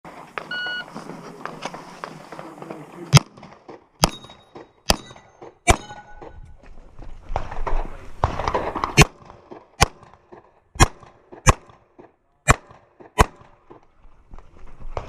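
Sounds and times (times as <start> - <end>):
pistol shots: 3.1 - 6.4, 7.4 - 13.8.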